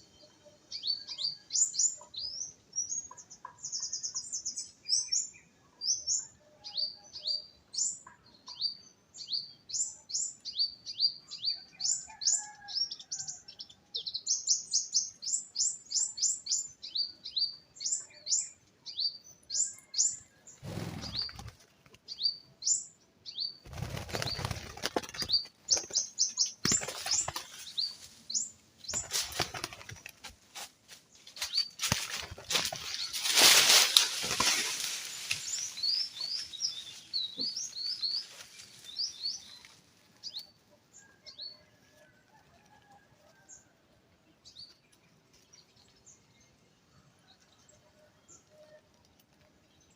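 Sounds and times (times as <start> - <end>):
small bird chirping rapidly: 14.1 - 30.1, 35.2 - 40.5
rustling noise: 28.9 - 37.2.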